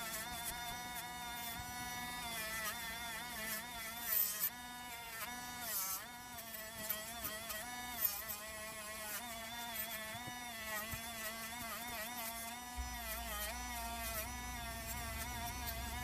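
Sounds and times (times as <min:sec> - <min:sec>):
rotary tool buzzing whine: 0:00.0 - 0:16.0
abrasive pad scratchy hiss: 0:12.8 - 0:16.0.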